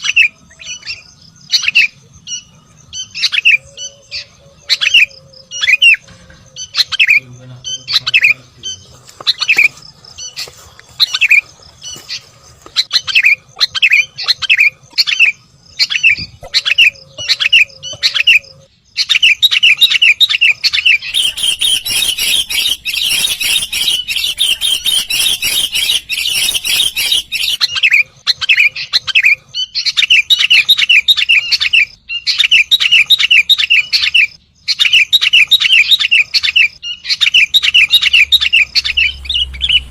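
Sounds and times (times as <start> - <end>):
bulbul calling: 0.0 - 39.9.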